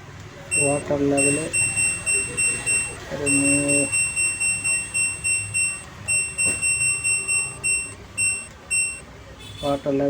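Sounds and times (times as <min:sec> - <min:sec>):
short high beeps: 0:00.5 - 0:09.0.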